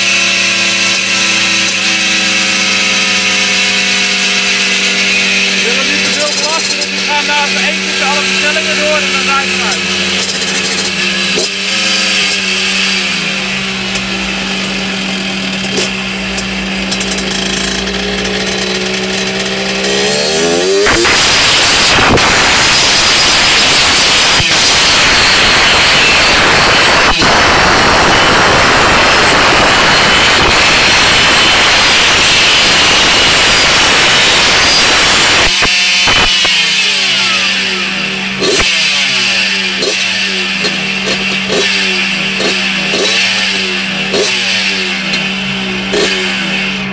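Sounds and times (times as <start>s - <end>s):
moped engine revving: 0.0s - 46.9s.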